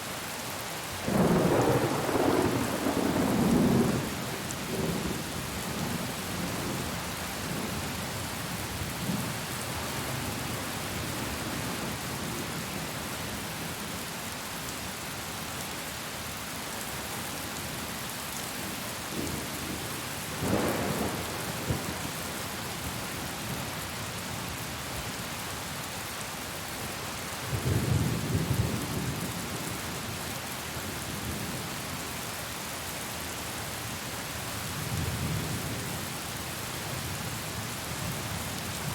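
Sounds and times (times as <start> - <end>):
heavy rain: 0.0 - 38.9
thunder rumbling: 1.1 - 5.0.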